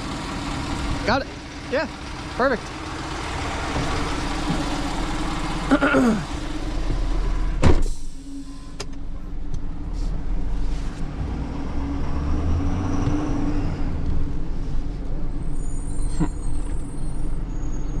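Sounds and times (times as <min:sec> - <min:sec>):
tow truck engine running: 0:00.0 - 0:12.1.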